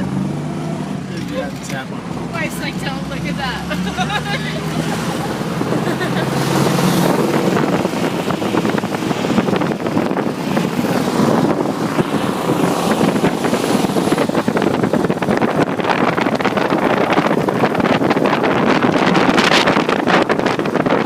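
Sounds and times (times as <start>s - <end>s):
car engine and road noise: 0.0s - 21.0s
wind buffeting microphone: 0.0s - 21.0s.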